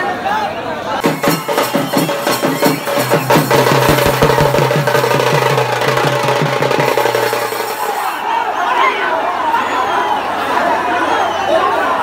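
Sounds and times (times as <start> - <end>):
fast drumming: 1.0 - 8.2.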